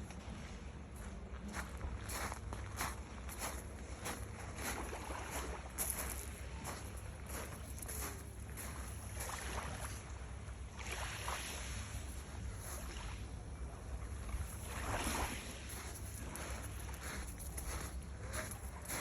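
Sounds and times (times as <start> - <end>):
small sea waves washing in: 4.6 - 13.4, 14.1 - 18.0.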